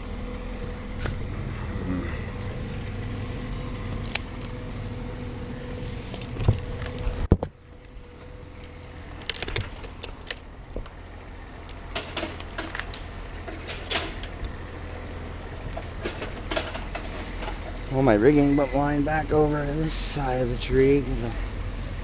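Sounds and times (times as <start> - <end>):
steady low hum: 0.0 - 22.0
climbing hardware clicking: 5.2 - 14.6.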